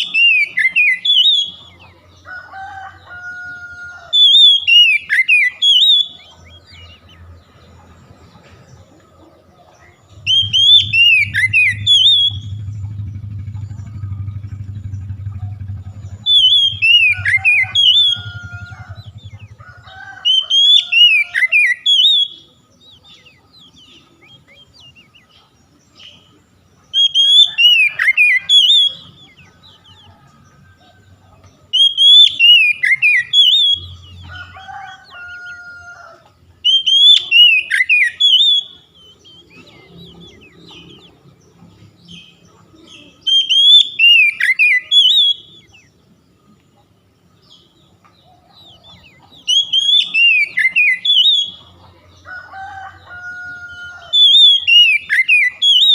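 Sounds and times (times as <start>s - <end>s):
bird whistled song: 0.0s - 2.0s, 4.0s - 7.3s, 10.1s - 30.3s, 31.7s - 35.6s, 36.6s - 41.2s, 42.1s - 46.0s, 48.2s - 51.8s, 54.0s - 55.9s.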